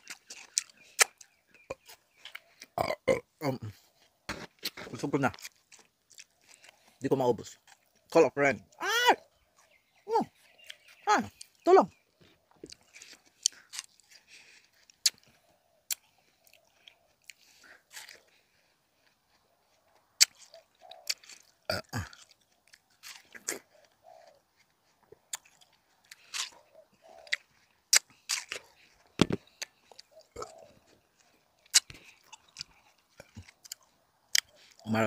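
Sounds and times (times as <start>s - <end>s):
person chewing watermelon: 0.0s - 8.2s, 9.2s - 35.0s.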